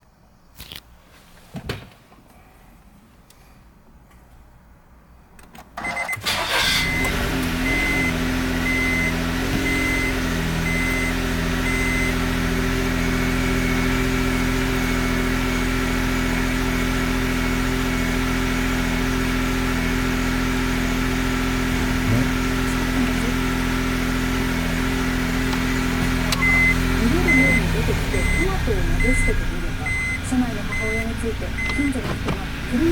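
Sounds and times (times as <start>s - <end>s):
car engine starting and idling: 5.4s - 32.9s
beeping tone: 8.7s - 12.2s, 26.3s - 32.0s.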